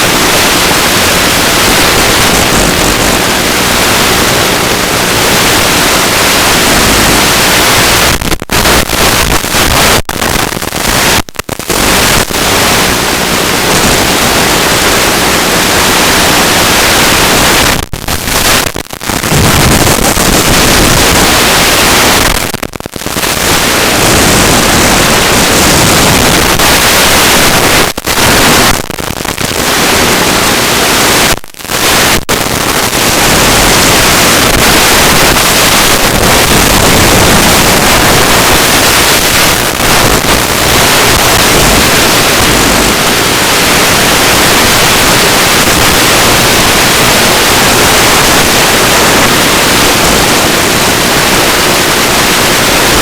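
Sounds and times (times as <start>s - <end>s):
static hiss: 0.0s - 53.0s.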